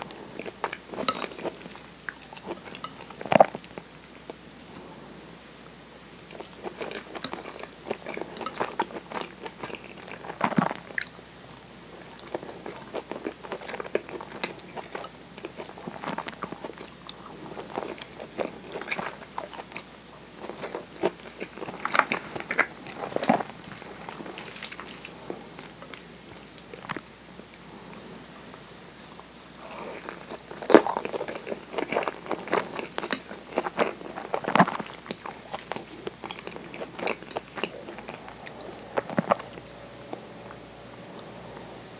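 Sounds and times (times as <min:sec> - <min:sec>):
person chewing food: 0:00.0 - 0:05.0, 0:06.2 - 0:11.2, 0:11.9 - 0:28.3, 0:28.9 - 0:41.9.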